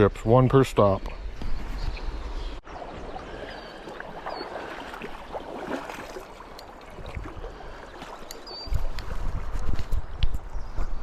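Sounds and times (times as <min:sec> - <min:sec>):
creek water rushing: 0:02.6 - 0:09.0
faint high chirp: 0:08.2 - 0:08.8.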